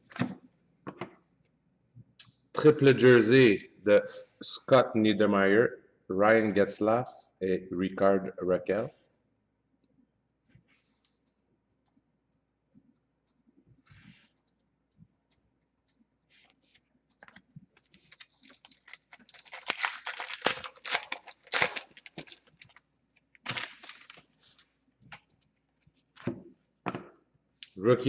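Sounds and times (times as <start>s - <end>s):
cards rustling: 16.7s - 26.4s
wrapper crinkling and tearing: 17.8s - 24.7s.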